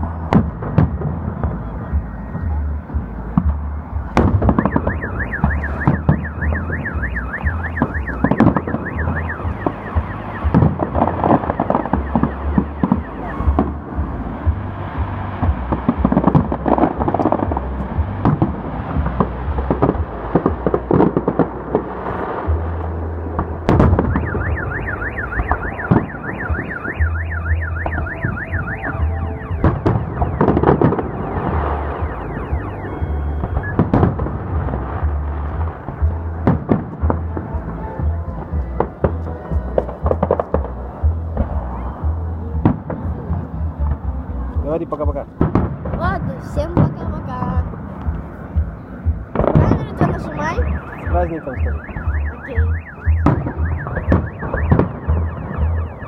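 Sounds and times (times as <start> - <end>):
fireworks bangs: 0.0 - 56.0
low rumble: 0.0 - 56.0
car alarm warbling: 1.6 - 14.0, 23.8 - 34.4, 49.4 - 56.0.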